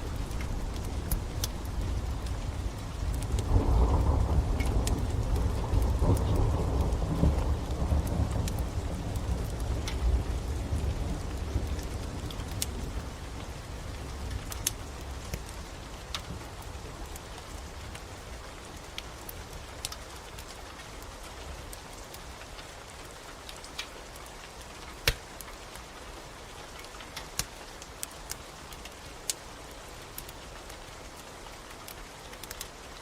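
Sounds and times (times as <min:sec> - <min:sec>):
low rumble of thunder: 0:00.0 - 0:18.3
wood fire crackling and popping: 0:00.0 - 0:25.9, 0:26.7 - 0:33.0
steady rain: 0:00.0 - 0:33.0.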